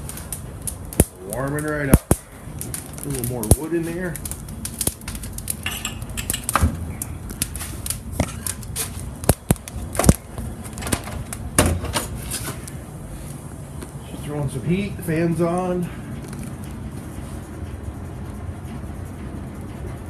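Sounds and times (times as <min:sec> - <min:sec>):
sharp crackles: 0:00.0 - 0:17.0
steady low hum: 0:00.0 - 0:20.0
logs knocking against metal stove: 0:05.0 - 0:06.8.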